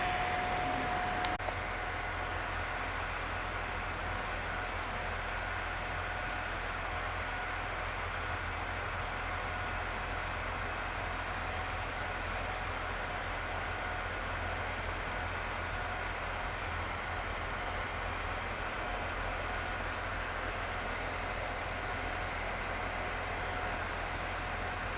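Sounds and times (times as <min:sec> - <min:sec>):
faint steady whine: 0:00.0 - 0:03.6
locomotive engine humming: 0:00.0 - 0:05.0, 0:17.9 - 0:24.9.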